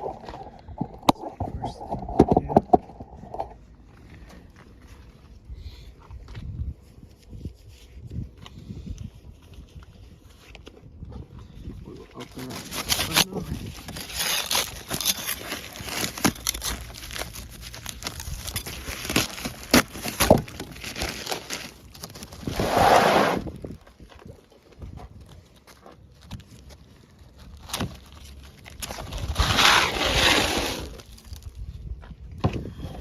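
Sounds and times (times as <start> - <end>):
shingles rustling scrapes: 12.2 - 31.6.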